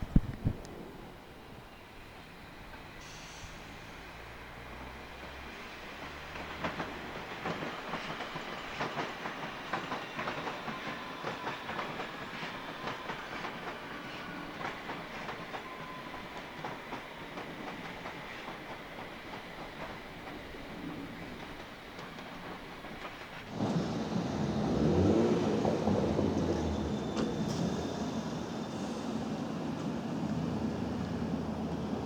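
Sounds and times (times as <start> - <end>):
train wheels clacking over joints: 3.6 - 29.2.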